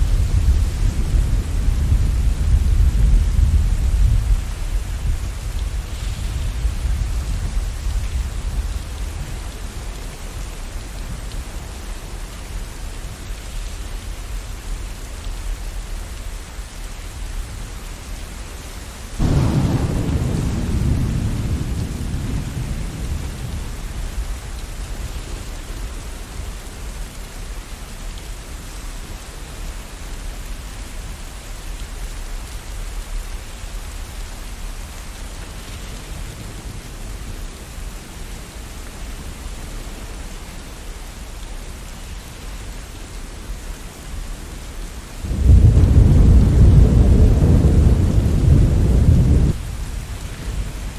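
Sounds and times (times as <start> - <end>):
thunder rumbling: 0.0 - 9.8, 19.2 - 24.8, 45.2 - 50.9
steady rain: 0.0 - 50.9
thunderclap: 19.2 - 24.2, 45.3 - 49.8.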